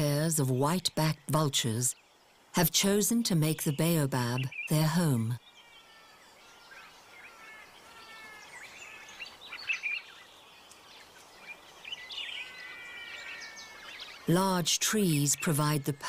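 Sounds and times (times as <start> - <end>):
birds chirping: 0.0 - 16.0
faint background hiss: 0.0 - 16.0.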